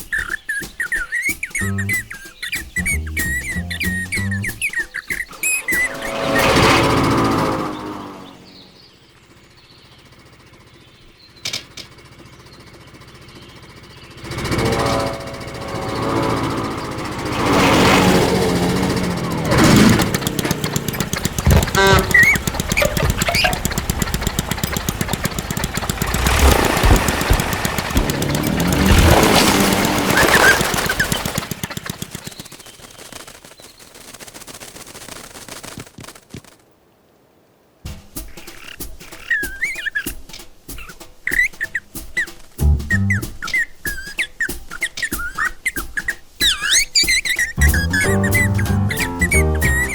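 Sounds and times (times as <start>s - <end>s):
small propeller motor puttering: 1.0s - 4.8s, 5.4s - 36.2s, 41.3s - 45.4s, 46.7s - 49.9s
sharp clicks: 19.5s - 34.0s.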